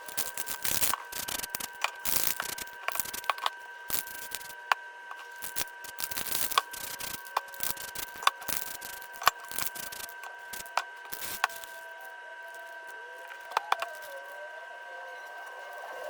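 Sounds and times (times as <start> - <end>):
steady high-pitched hum: 0.0 - 16.0.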